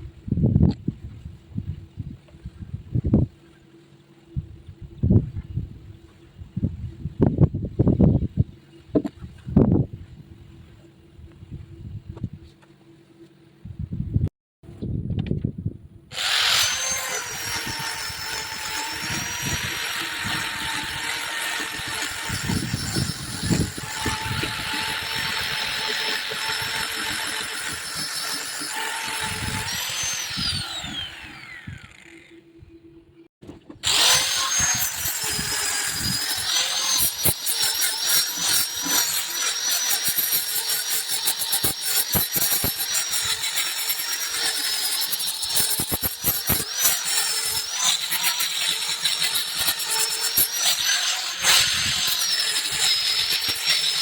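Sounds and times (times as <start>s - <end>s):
power tool whining on wood: 16.1s - 32.5s, 33.8s - 54.0s.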